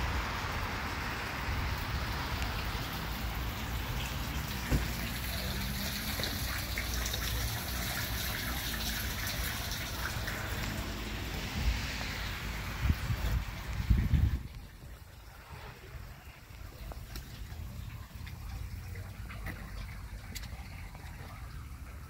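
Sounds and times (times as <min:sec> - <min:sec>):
light rain falling: 0:00.0 - 0:22.0
wind noise on microphone: 0:11.2 - 0:16.2.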